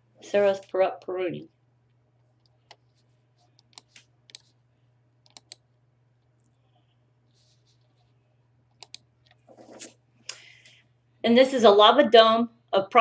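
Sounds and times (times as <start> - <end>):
faint low hum: 0.0 - 13.0
computer mouse clicks: 3.5 - 4.5, 5.2 - 5.6, 8.7 - 9.9.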